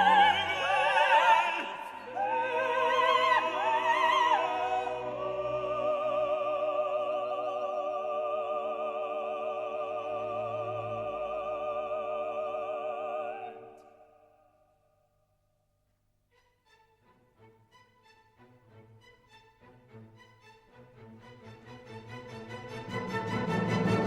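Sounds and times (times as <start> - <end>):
operatic singing with vibrato: 0.0 - 14.4
orchestral accompaniment: 16.4 - 24.0.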